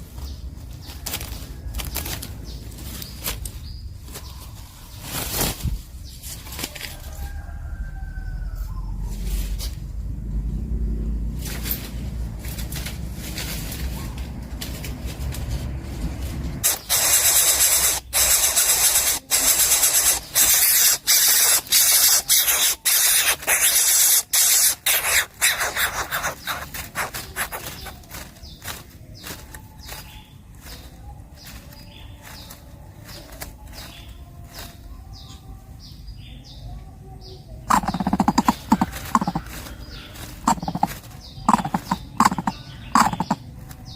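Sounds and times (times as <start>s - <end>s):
bird nestling hissing: 16.6s - 27.9s.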